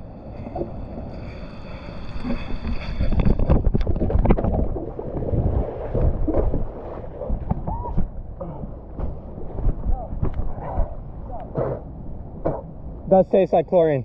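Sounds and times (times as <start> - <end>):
moving water rumble: 0.0 - 14.0
water splashes: 0.2 - 11.7
wind buffeting microphone: 2.2 - 13.1.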